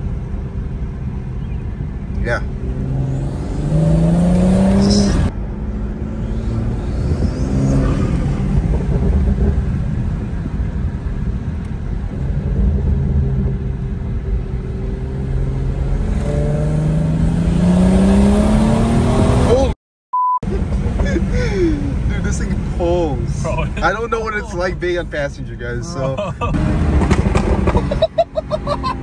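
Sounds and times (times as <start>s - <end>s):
car engine accelerating: 1.0s - 19.7s, 26.2s - 29.0s.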